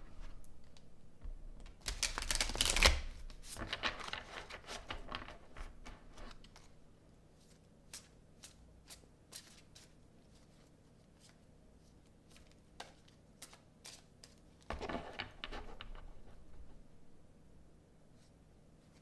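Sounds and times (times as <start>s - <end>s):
cards being shuffled: 1.6s - 6.8s.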